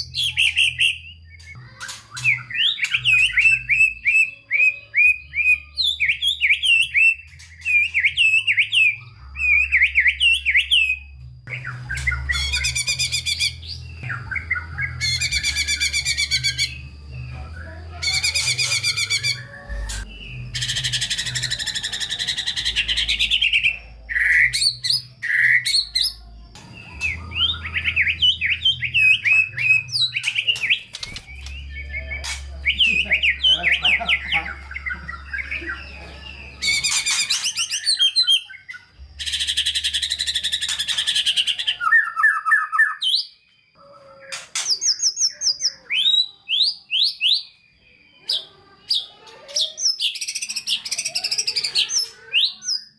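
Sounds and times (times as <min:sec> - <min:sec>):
harsh rasping bird calls: 0:11.5 - 0:42.9.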